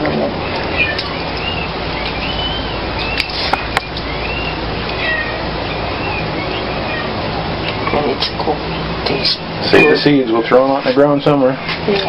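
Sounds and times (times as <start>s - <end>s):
small bird chirping: 0.5s - 10.6s
steady rushing hiss: 2.8s - 12.0s.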